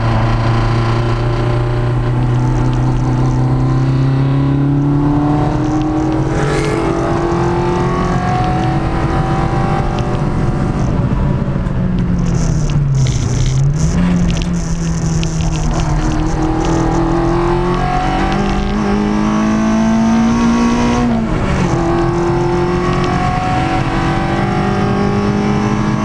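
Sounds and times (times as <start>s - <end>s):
car engine under load: 0.0s - 26.0s.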